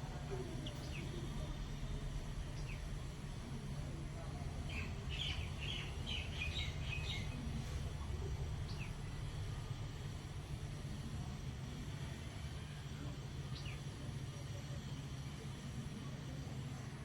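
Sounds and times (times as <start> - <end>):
small bird chirping: 4.7 - 7.6.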